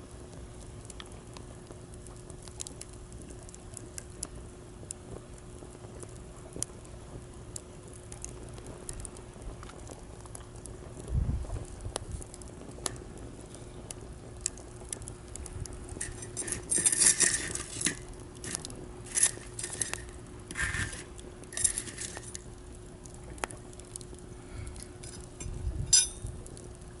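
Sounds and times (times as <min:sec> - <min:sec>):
campfire crackling and popping: 0:00.0 - 0:27.0.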